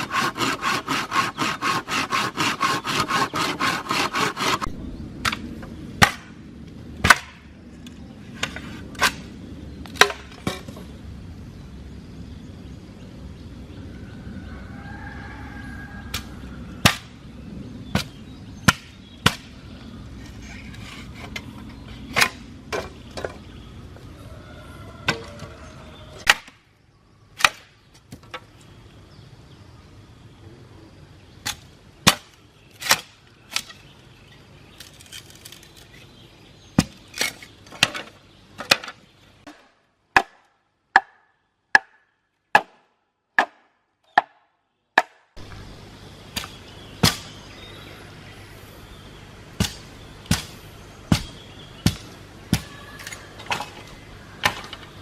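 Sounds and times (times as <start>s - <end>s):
low steady rumble: 4.6s - 26.0s, 45.4s - 55.0s
hand tool striking wood: 49.6s - 52.8s.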